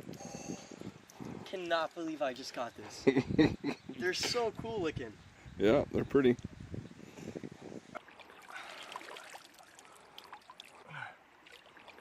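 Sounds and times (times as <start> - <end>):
river water trickling: 7.9 - 12.0
water splashes and drips: 7.9 - 12.0.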